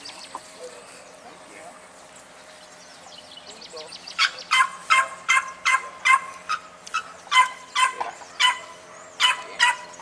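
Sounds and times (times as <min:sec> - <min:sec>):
dog barking: 0:04.2 - 0:06.6, 0:07.3 - 0:10.0.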